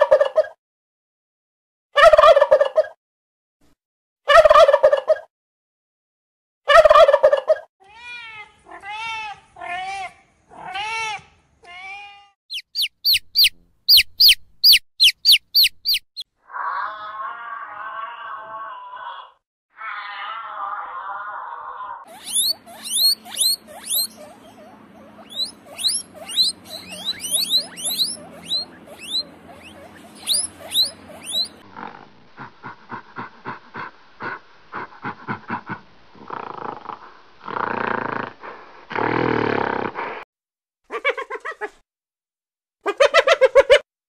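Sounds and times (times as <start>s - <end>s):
guinea pigs squeaking: 12.5s - 16.2s, 22.1s - 31.6s
gorilla grunts and roars: 16.4s - 40.2s.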